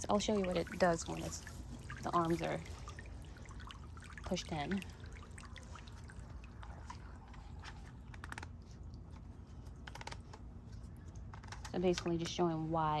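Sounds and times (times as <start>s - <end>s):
faint clicks and crackles: 6.6s - 12.4s.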